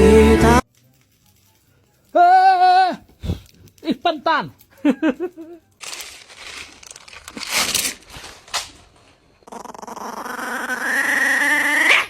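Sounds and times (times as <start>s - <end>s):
rustling: 0.6s - 2.4s, 3.0s - 9.4s
long animal cry: 9.4s - 12.0s.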